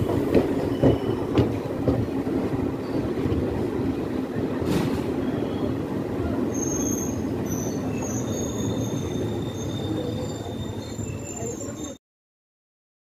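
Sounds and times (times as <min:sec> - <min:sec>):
train rumbling: 0:00.0 - 0:12.0
wheels squealing: 0:06.5 - 0:12.0.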